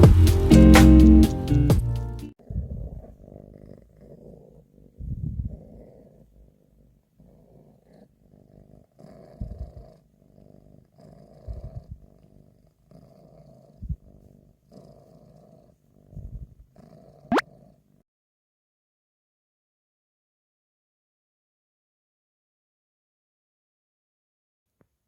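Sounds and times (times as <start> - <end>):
cat purring: 2.4 - 18.0.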